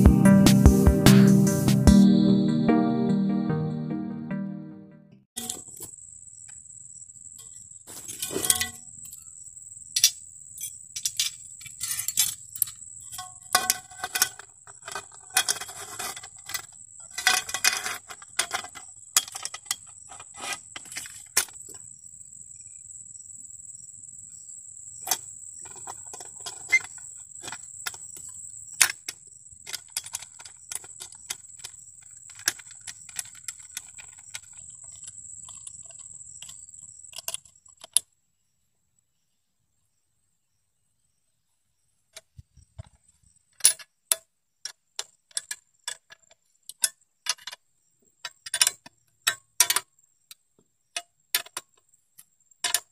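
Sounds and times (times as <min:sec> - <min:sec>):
metal sickle clinking and rattling: 0:08.0 - 0:09.2, 0:10.0 - 0:21.7, 0:25.0 - 0:37.9.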